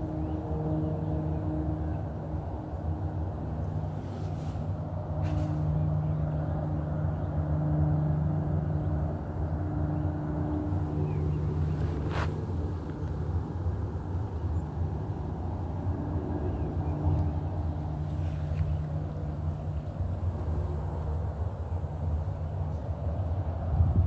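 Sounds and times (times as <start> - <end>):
low motor hum: 0.0 - 24.0.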